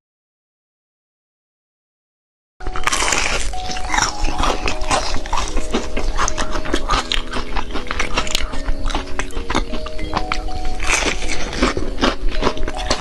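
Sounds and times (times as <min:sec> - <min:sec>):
soft melody: 0:02.6 - 0:13.0
wet chewing and lip smacking: 0:02.6 - 0:13.0.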